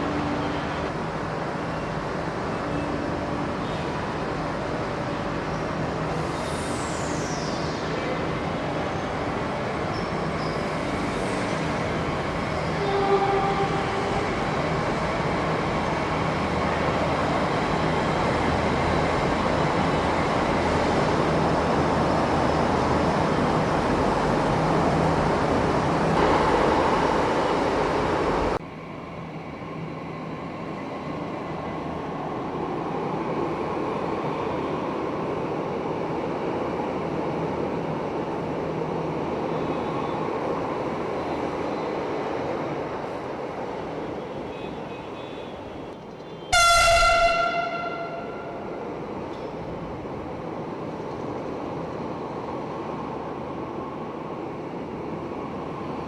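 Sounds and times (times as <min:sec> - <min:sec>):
metro train rumble and hiss: 0:00.0 - 0:56.0
short pitched tone: 0:46.6 - 0:48.6.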